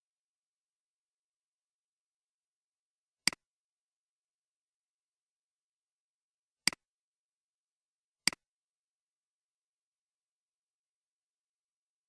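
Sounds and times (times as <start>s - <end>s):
computer mouse clicks: 8.3s - 8.5s.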